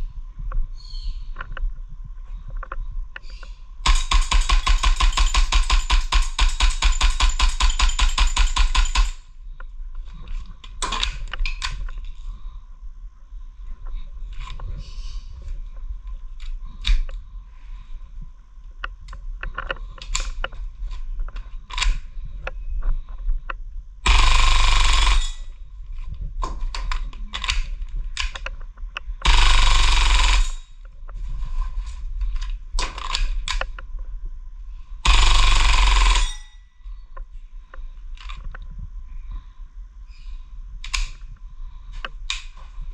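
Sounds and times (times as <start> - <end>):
airsoft pistol clicks and clacks: 3.9 - 9.3, 24.1 - 25.4, 29.2 - 30.6, 35.1 - 36.5.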